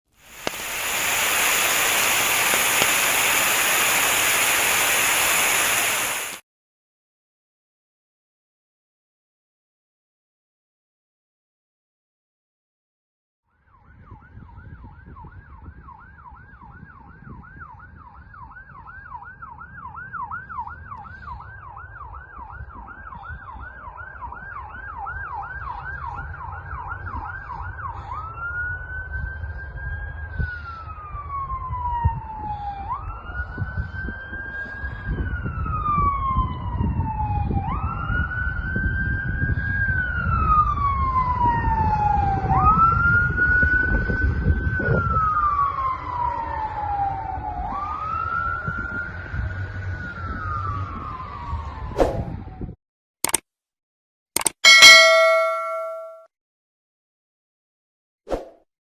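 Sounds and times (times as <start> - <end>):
fire engine siren: 0.4 - 6.4, 13.6 - 52.8.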